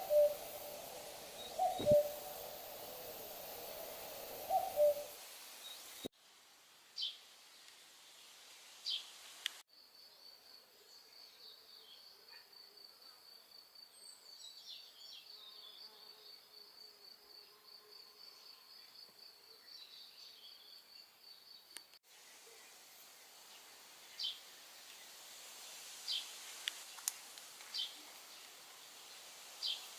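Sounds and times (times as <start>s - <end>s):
soft bird calls: 0.0s - 5.2s
insect trilling: 0.0s - 5.7s.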